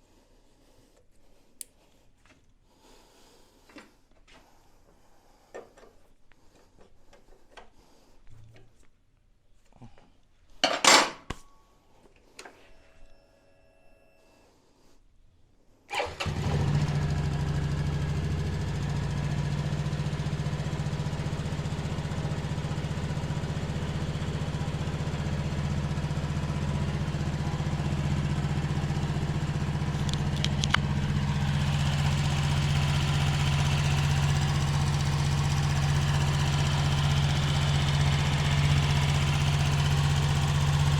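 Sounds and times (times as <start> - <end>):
motorcycle engine starting and idling: 15.9 - 40.9.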